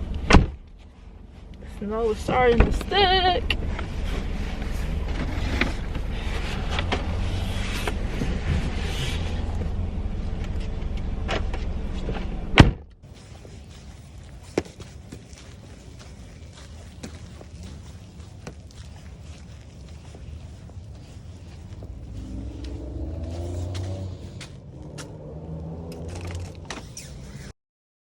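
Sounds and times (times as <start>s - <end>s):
car door slamming: 0.2s - 0.6s, 12.5s - 12.8s.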